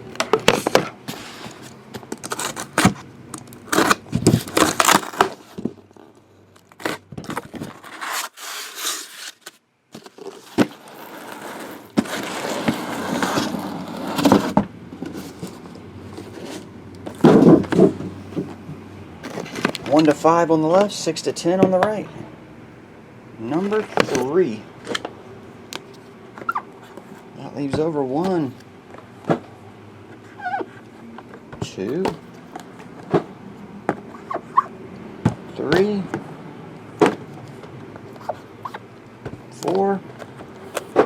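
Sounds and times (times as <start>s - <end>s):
cardboard scraping and rustling: 0.1s - 18.6s, 19.2s - 20.9s, 23.5s - 25.2s, 25.9s - 34.7s, 35.3s - 36.3s, 36.9s - 41.0s
plastic wrap crackling and tearing: 1.6s - 14.3s.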